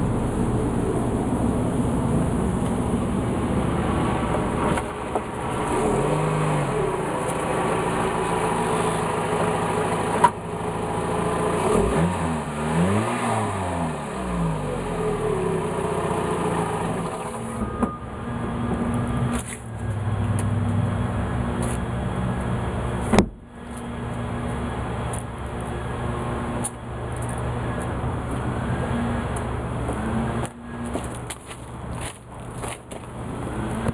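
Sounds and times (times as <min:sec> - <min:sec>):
car engine revving: 0:00.0 - 0:17.7.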